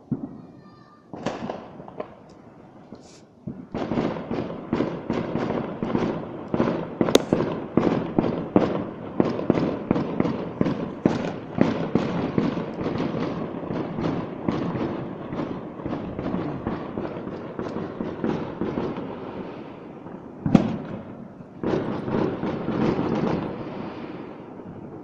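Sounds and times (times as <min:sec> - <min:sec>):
fireworks crackling: 0:00.0 - 0:25.0
sharp firework crack: 0:07.0 - 0:25.0.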